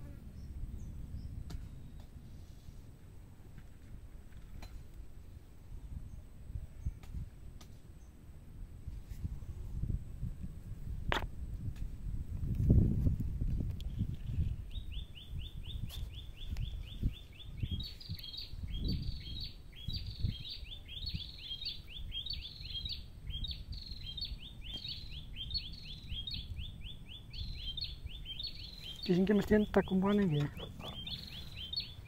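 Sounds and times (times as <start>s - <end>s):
bird chirping rapidly: 14.3s - 32.0s.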